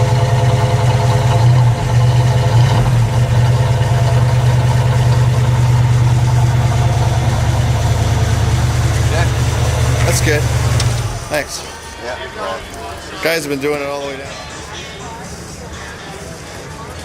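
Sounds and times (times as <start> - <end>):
car engine idling: 0.0 - 13.1.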